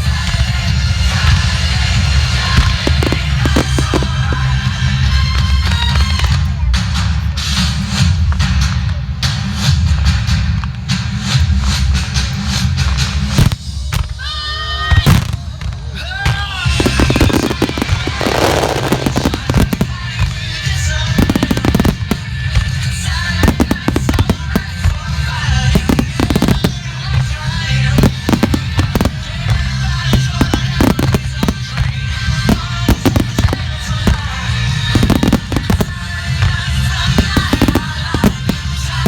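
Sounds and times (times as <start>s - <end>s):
fireworks crackling: 0.0s - 39.0s
loud music soundtrack: 0.0s - 39.0s
fireworks shells bursting: 2.2s - 4.8s, 16.7s - 39.0s.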